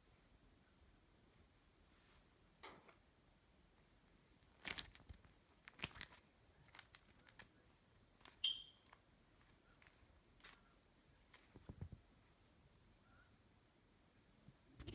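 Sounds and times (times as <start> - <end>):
short high-pitched chirp: 8.4 - 8.8.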